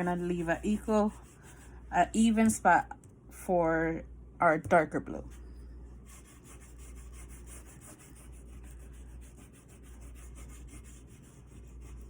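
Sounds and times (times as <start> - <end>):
oil pastel rubbing on paper: 0.0 - 2.4, 5.3 - 12.0.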